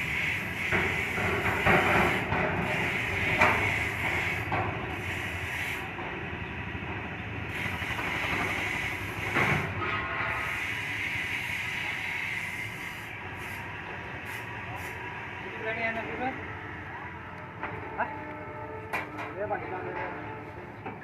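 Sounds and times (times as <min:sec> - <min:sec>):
hiss: 0:00.0 - 0:05.9, 0:07.5 - 0:15.0
engine running: 0:00.0 - 0:18.8.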